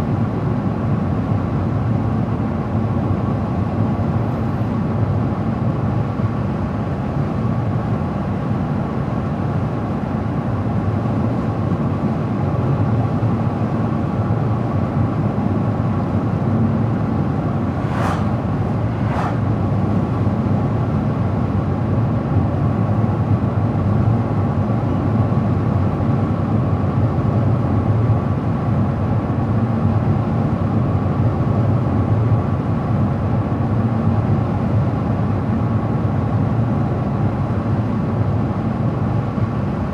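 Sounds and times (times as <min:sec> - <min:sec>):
car tyres and engine hum: 0:08.7 - 0:23.5
sharp swishes: 0:17.5 - 0:20.5.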